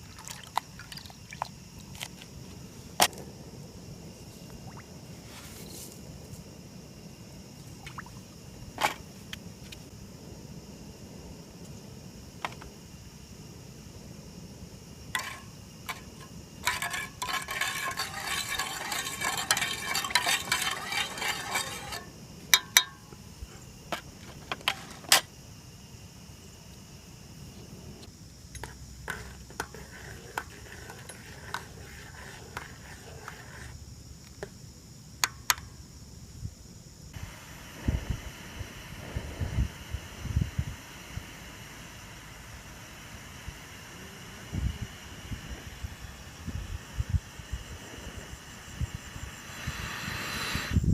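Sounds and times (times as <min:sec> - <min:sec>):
light scraping: 0:15.1 - 0:22.1, 0:23.5 - 0:25.2, 0:28.6 - 0:33.8
utensil clinking against metal pot: 0:15.2 - 0:23.0.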